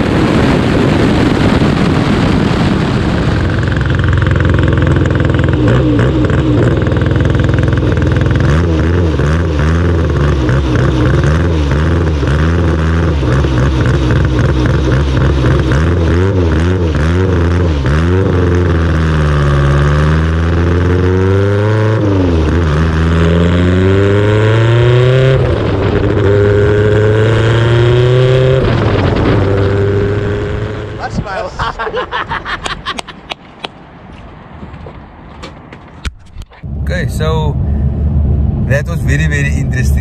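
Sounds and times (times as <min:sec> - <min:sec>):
race car engine revving: 0:03.2 - 0:31.4.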